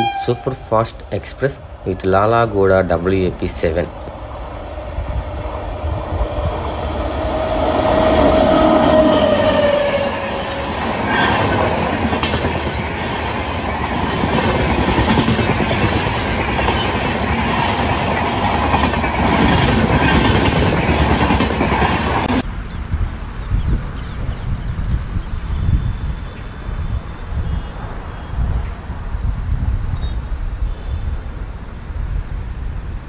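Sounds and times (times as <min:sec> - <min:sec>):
locomotive horn blast: 0:00.0 - 0:00.9
train wheels clattering over rail joints: 0:11.0 - 0:22.4.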